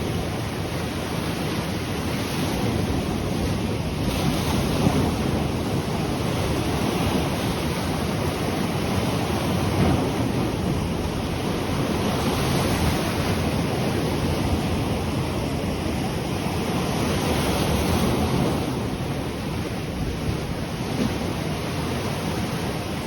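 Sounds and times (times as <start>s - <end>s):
ocean waves washing onto shore: 0.0s - 23.0s.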